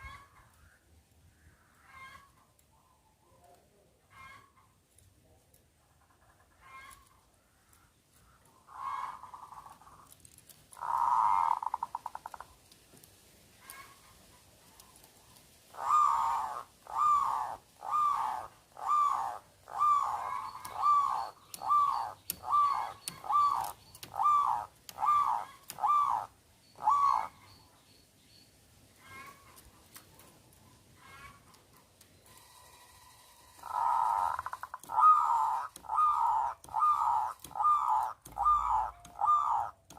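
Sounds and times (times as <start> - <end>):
dove cooing and trilling: 10.8 - 12.4, 15.7 - 27.5, 33.5 - 39.9.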